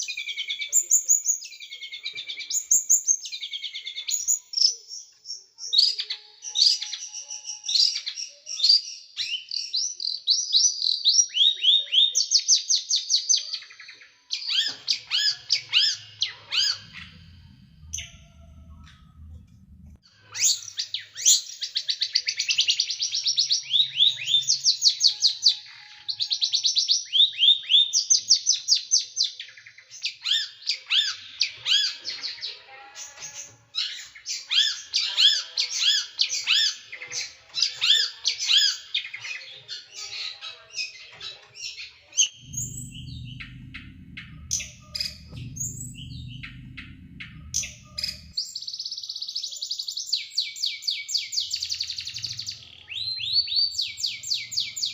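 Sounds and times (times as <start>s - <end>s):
low hum: 15.4s - 20.0s, 42.3s - 48.4s.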